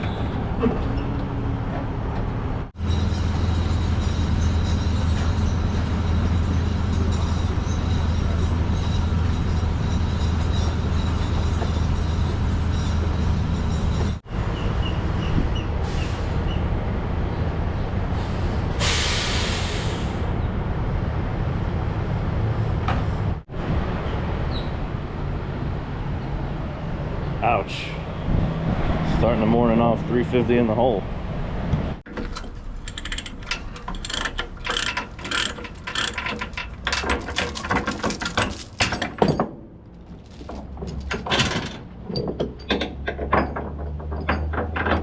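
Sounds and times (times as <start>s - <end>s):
loud air hiss: 18.2s - 20.3s.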